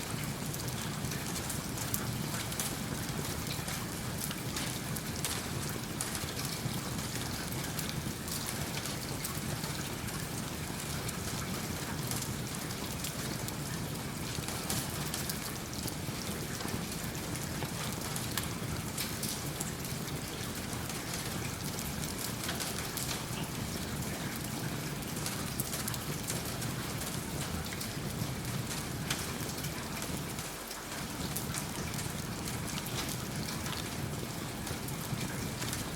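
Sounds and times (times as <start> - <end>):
rain falling: 0.0 - 35.9.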